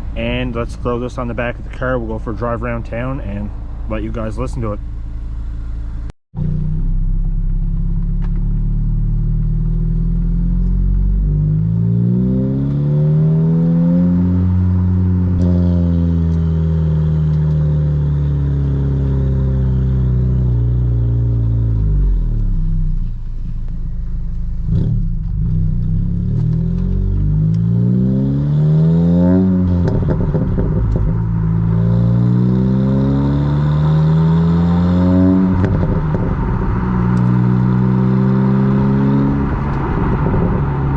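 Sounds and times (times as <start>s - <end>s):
car engine revving while driving: 6.4s - 22.8s, 24.6s - 40.9s.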